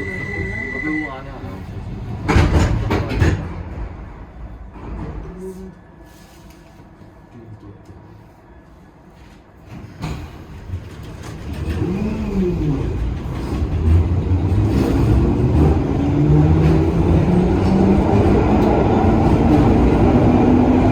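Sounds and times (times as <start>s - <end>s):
train motor whine: 0.0s - 1.2s
train rumble accelerating: 0.0s - 20.9s.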